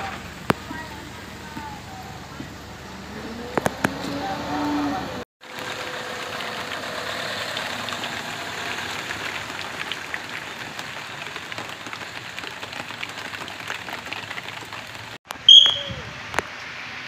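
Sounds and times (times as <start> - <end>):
faint vehicle engine hum: 0.0 - 12.7
heavy rain on a street: 0.0 - 17.0.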